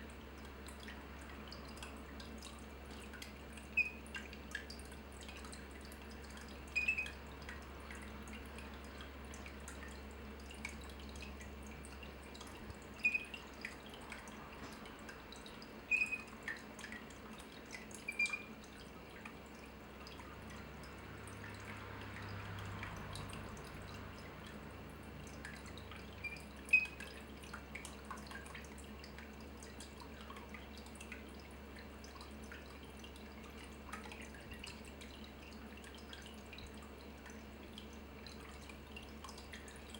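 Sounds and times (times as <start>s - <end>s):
water drops plinking: 3.1s - 7.6s, 10.6s - 17.0s, 17.7s - 19.3s, 25.4s - 27.2s.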